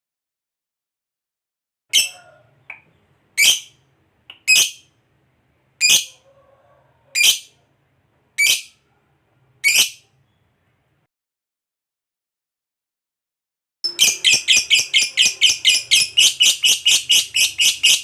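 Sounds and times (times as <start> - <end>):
lovebird shrill calls: 1.9 - 2.3, 3.4 - 3.8, 4.4 - 4.9, 9.6 - 10.0, 13.9 - 18.0.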